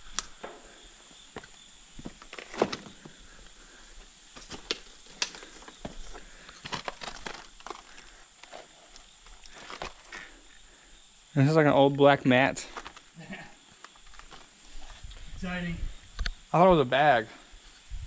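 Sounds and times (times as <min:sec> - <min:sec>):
footsteps on rocky creek bed: 0:01.3 - 0:03.2, 0:04.0 - 0:10.3.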